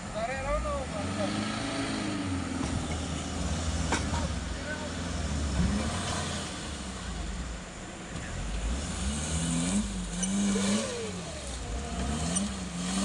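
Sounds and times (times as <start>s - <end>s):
voices calling: 0.0s - 8.8s, 9.8s - 13.0s
off-road vehicle engine rumbling: 0.0s - 13.0s.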